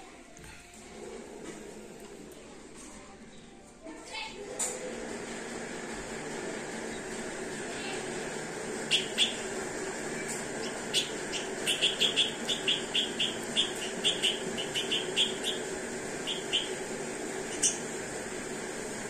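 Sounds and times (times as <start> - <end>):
steady low hum: 4.7 - 19.0
bird chirping sharp notes: 8.9 - 9.5, 10.6 - 16.8.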